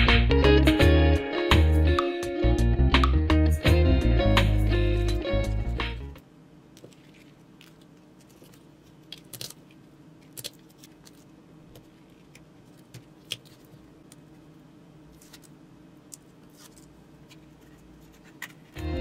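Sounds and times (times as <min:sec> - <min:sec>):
faint steady hum: 0:03.7 - 0:19.0
clicks and rustles of handling: 0:06.8 - 0:14.4, 0:15.1 - 0:18.8.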